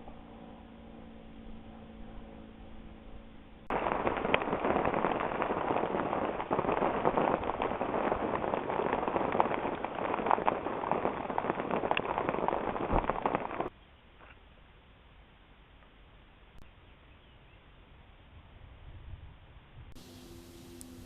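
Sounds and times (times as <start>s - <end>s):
heavy rain on hard surfaces: 3.7s - 13.7s.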